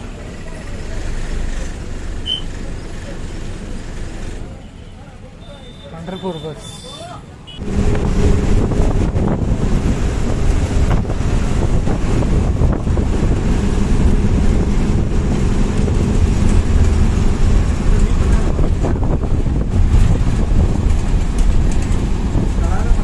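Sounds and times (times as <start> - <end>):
bus engine and road noise: 0.0 - 23.0
wind buffeting microphone: 7.6 - 23.0.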